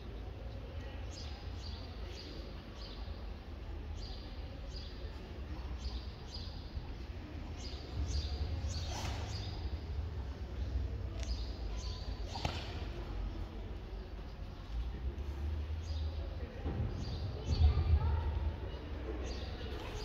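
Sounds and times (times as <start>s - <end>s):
sword swish: 8.7s - 9.6s.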